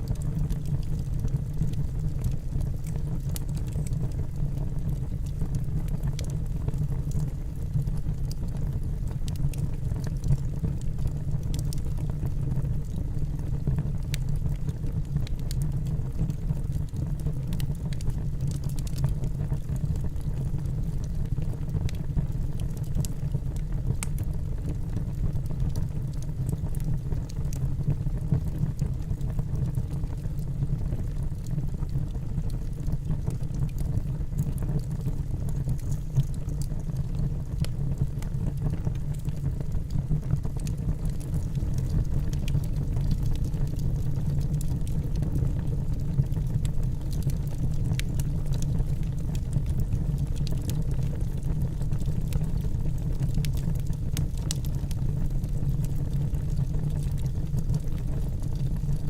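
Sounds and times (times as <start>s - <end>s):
logs crackling and popping: 0.0s - 59.0s
low rush of flames: 31.0s - 59.0s.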